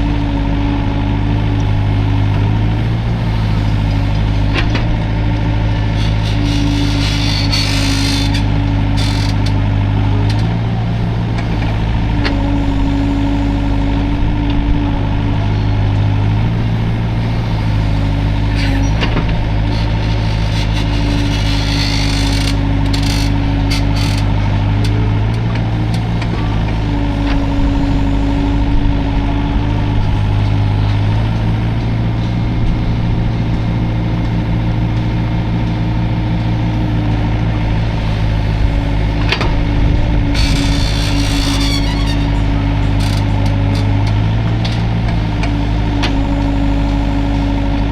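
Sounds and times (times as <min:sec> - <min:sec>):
excavator diesel engine running: 0:00.0 - 0:47.9
hydraulic whine: 0:00.0 - 0:47.9.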